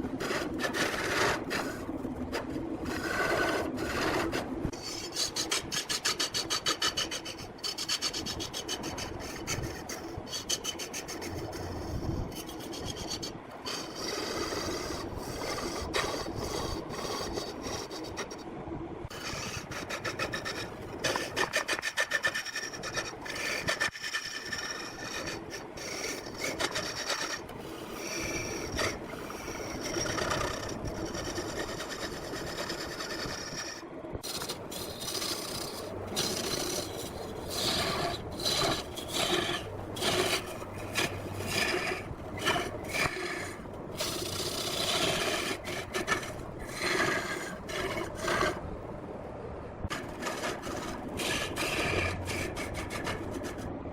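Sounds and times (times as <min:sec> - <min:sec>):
lathe tool cutting wood: 0:13.7 - 0:15.0, 0:19.2 - 0:30.7, 0:32.0 - 0:48.6, 0:49.9 - 0:53.6.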